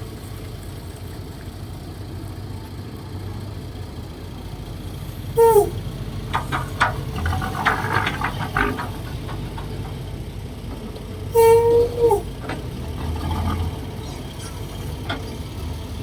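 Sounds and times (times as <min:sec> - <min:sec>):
excavator diesel engine running: 0:00.0 - 0:16.0
clanks and knocks: 0:05.5 - 0:16.0.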